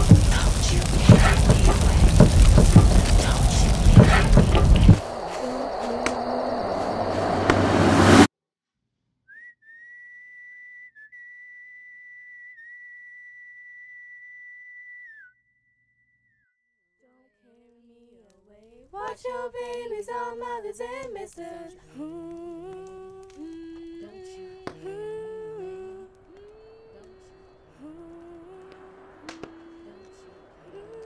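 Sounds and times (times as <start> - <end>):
loud rushing noise: 0.0 - 8.3
high steady whistle-like tone: 5.0 - 8.3, 9.3 - 16.6, 29.1 - 31.0
woman humming a slow tune: 5.1 - 7.2, 20.9 - 31.0.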